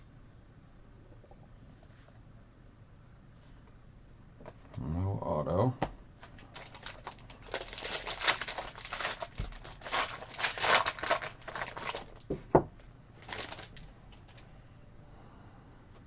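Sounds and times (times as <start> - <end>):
wrapper being torn and crinkled: 6.2 - 12.3, 13.2 - 14.4.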